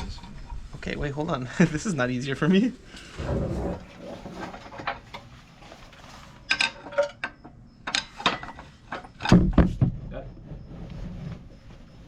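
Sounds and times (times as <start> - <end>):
metallic clicks and clanks of tools: 6.4 - 9.4.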